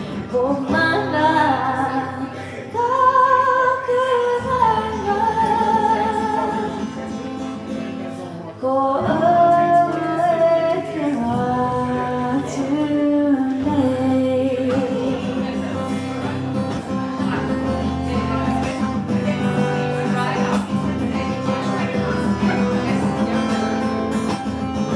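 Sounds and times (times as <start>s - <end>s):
person singing with vibrato: 0.0s - 7.0s
guitar accompaniment: 0.0s - 24.9s.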